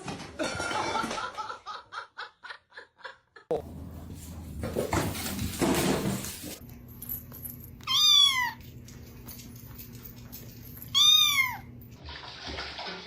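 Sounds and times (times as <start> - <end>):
cat meowing: 7.9 - 8.6, 11.0 - 11.7.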